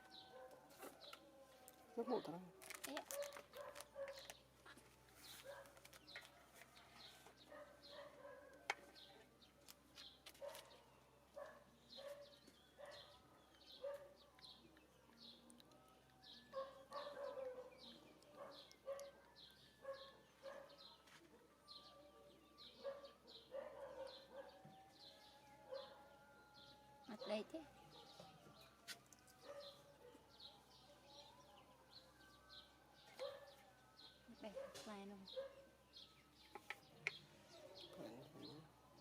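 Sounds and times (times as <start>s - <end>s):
birds chirping: 0.0s - 1.2s, 1.9s - 21.0s, 21.7s - 39.0s.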